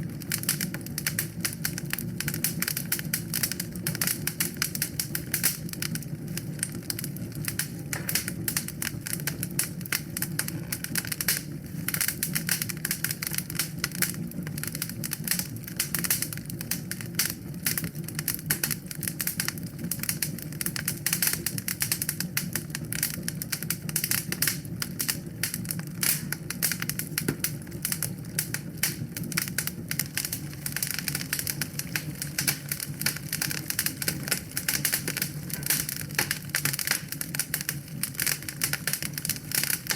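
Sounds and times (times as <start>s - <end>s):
fire snapping and popping: 0.0s - 39.9s
low rush of flames: 23.6s - 39.9s.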